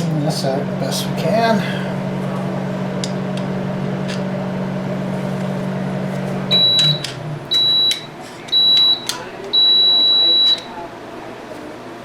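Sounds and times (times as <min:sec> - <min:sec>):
microwave oven humming: 0:00.0 - 0:12.0
high beep: 0:06.5 - 0:10.7.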